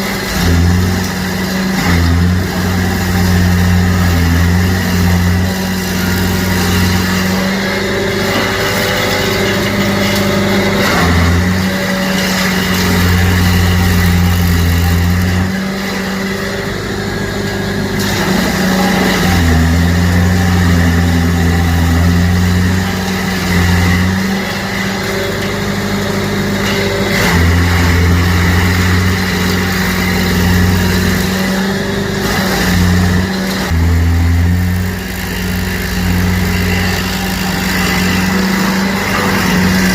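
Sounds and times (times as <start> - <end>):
stump grinder engine running hard: 0.0 - 39.9.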